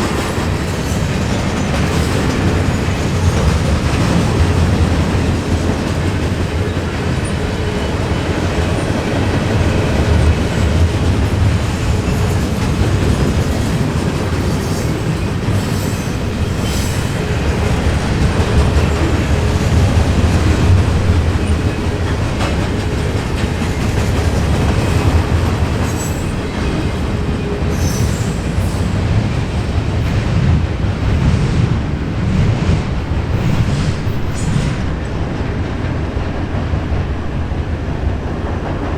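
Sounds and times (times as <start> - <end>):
train wheels rumbling on rail: 0.0 - 38.9
high wheel squeals: 13.6 - 17.3.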